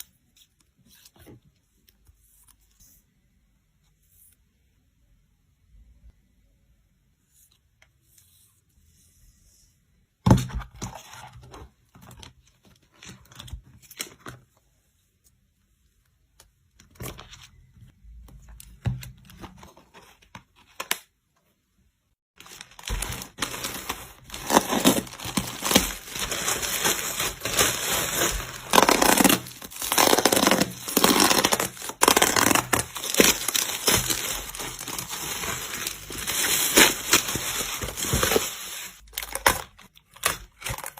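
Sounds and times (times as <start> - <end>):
packaging crinkling and tearing: 22.4 - 40.9
packaging rustling and clicking: 22.4 - 40.9.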